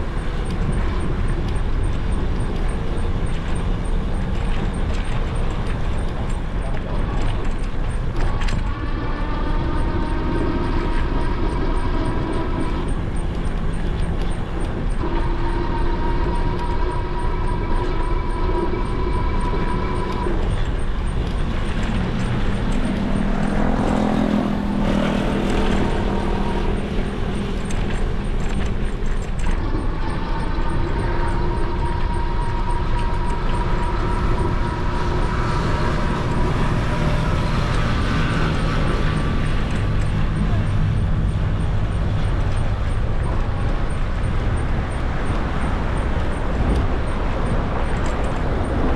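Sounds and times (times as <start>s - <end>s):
wind and road noise: 0.0s - 48.9s
vehicle passing: 21.4s - 29.1s.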